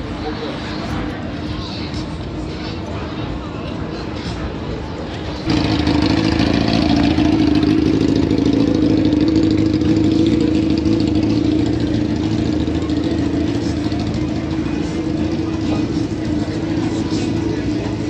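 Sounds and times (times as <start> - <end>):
vehicle engine running: 5.3 - 18.0.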